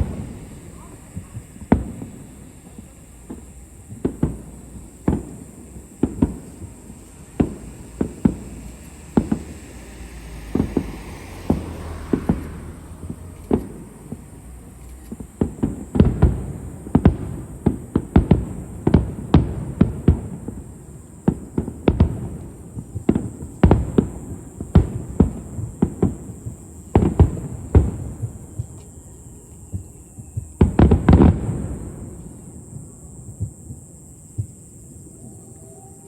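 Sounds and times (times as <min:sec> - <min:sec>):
hissing rush: 0:00.0 - 0:15.0
fireworks booming: 0:00.0 - 0:36.0.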